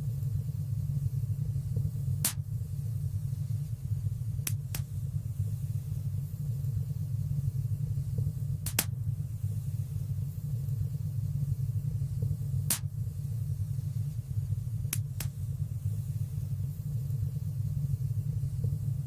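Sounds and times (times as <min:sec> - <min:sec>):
low rumble of flames: 0:00.0 - 0:19.0
fire crackling pops: 0:02.1 - 0:02.8, 0:04.3 - 0:05.2, 0:08.2 - 0:09.2, 0:12.2 - 0:13.2, 0:14.8 - 0:15.6.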